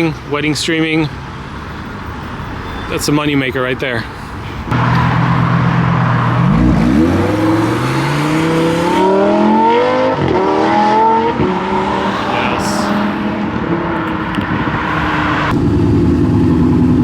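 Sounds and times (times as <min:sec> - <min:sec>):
car engine accelerating: 0:04.7 - 0:17.0.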